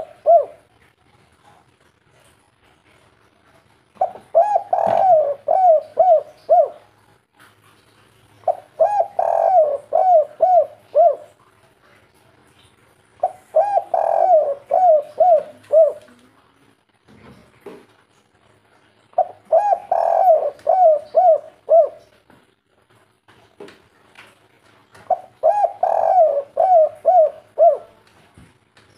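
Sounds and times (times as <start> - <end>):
dove cooing: 0.0 - 0.7, 4.0 - 6.9, 8.4 - 11.4, 13.2 - 16.2, 19.2 - 22.2, 25.1 - 28.0.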